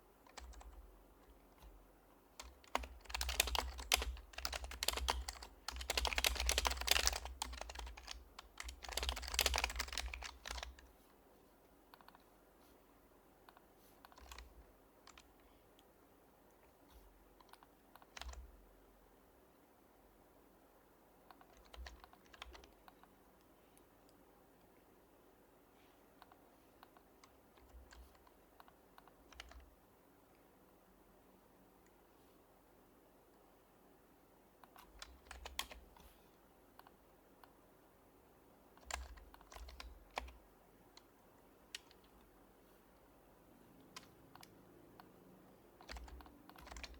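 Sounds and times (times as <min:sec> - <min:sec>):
soft keyboard typing: 0:00.2 - 0:11.0, 0:11.7 - 0:12.3, 0:13.4 - 0:15.9, 0:16.5 - 0:18.6, 0:21.2 - 0:24.8, 0:26.1 - 0:30.8, 0:34.6 - 0:37.6, 0:38.6 - 0:46.9.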